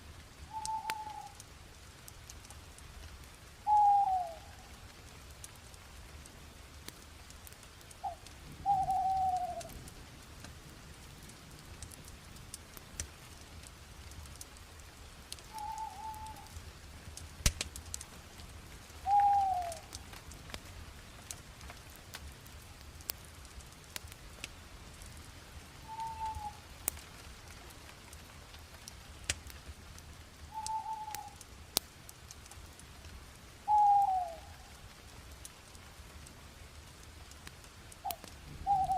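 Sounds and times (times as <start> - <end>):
faint hiss: 0.0 - 38.9
fire pops and snaps: 0.0 - 38.9
wood fire crackling: 0.0 - 38.9
bird calling falling notes: 0.5 - 1.4, 3.7 - 4.6, 8.0 - 9.7, 15.5 - 16.5, 19.0 - 20.0, 25.9 - 26.6, 30.5 - 31.4, 33.7 - 34.5, 38.0 - 38.9.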